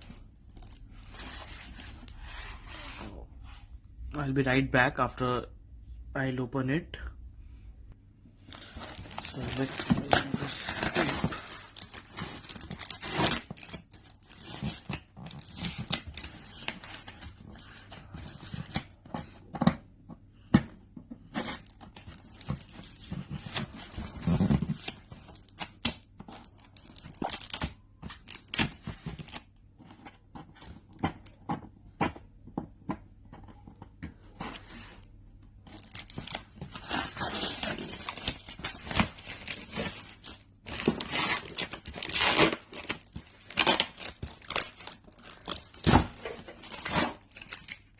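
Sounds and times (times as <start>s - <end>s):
packing tape ripping: 35.8s - 47.8s.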